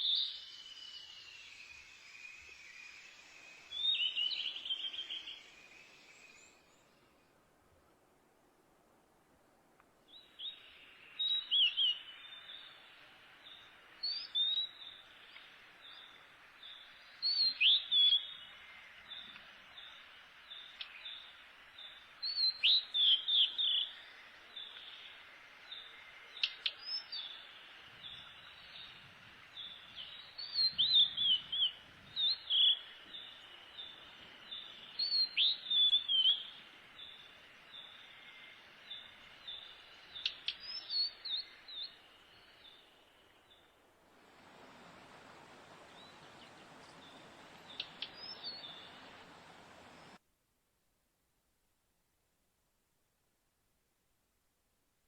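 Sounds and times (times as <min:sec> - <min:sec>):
bird chirping: 0:00.0 - 0:07.1, 0:29.6 - 0:43.7, 0:44.5 - 0:50.2
faint high-pitched hiss: 0:00.0 - 0:55.0.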